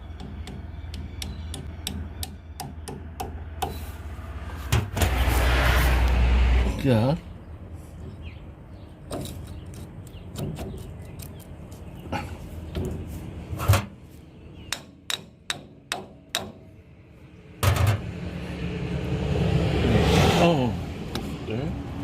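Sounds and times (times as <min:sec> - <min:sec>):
metal knocks and taps: 0:00.1 - 0:03.8, 0:17.6 - 0:18.1.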